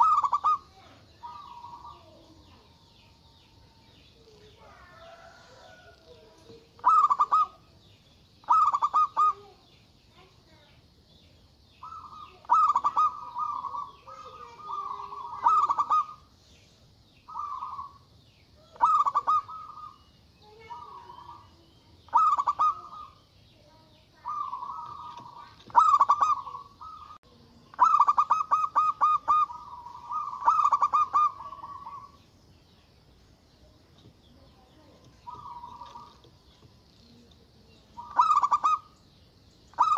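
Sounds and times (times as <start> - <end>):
dove cooing: 0.0 - 7.8, 8.4 - 9.7, 11.8 - 16.3, 17.3 - 23.2, 24.2 - 32.2, 35.0 - 36.5, 37.2 - 39.0.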